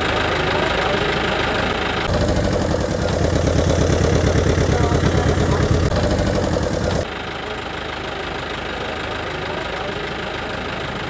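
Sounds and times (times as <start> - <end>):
motor running with rapid pulse: 2.0 - 7.1.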